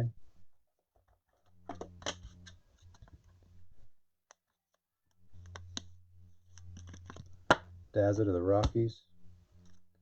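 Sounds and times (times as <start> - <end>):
faint low hum: 5.1 - 10.0.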